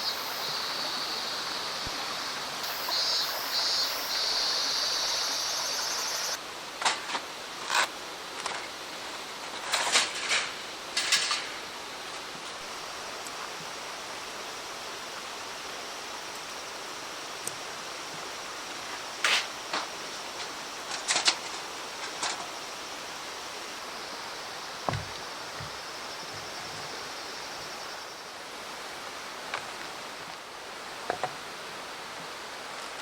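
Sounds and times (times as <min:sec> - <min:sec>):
mountain stream rushing: 0:00.0 - 0:33.0
dull knock: 0:24.9 - 0:25.8.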